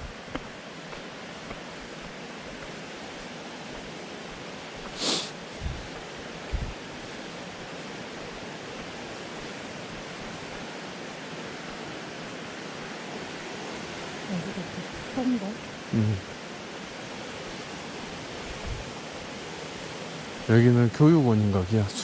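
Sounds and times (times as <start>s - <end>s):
steady rushing noise: 0.0s - 22.0s
short sharp hiss: 4.8s - 5.4s
soft low thuds: 5.6s - 6.8s, 18.5s - 18.9s.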